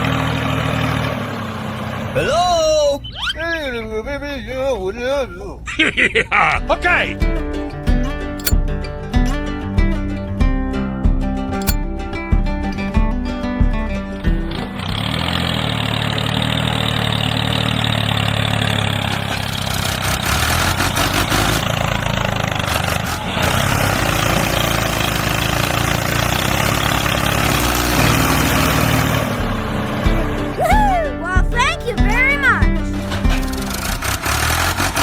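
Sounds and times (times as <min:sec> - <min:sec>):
engine running: 0:15.3 - 0:30.1.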